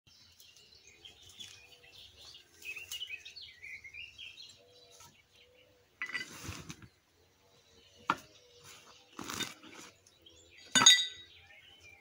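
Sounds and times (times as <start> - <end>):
birds chirping and calling: 0.1 - 12.0.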